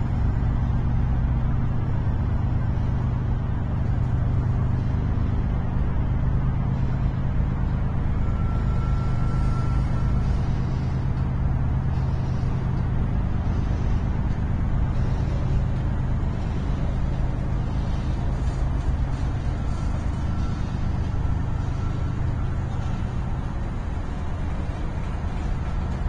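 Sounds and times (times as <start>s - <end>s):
freight train rumbling past: 3.8s - 26.0s
thin high squeal: 8.2s - 11.2s, 17.7s - 26.0s.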